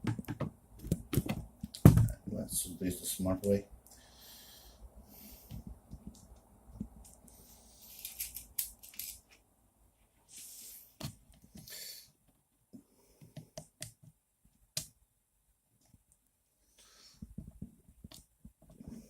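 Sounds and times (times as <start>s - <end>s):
small parts clicking: 7.9s - 9.4s.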